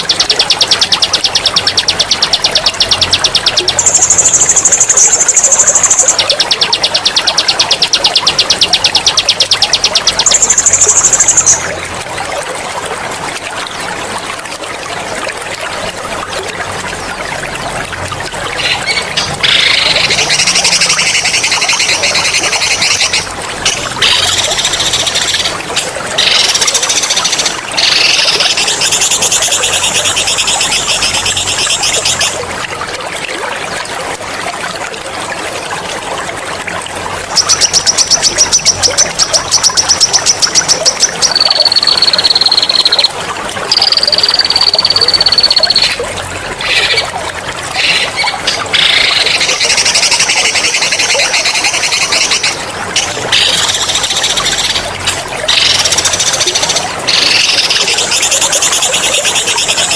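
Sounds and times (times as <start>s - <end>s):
running water trickling: 0.0s - 59.9s
songbird trilling: 37.4s - 43.1s, 43.7s - 46.0s.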